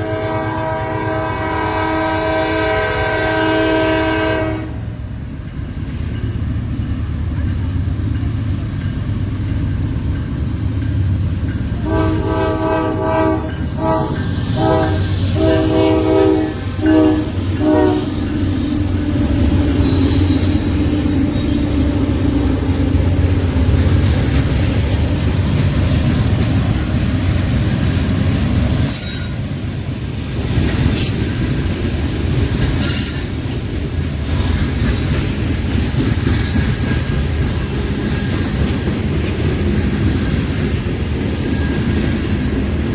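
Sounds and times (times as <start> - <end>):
train horn blasts: 0.0 - 5.0, 11.8 - 22.9
train rolling on rails: 0.0 - 42.9.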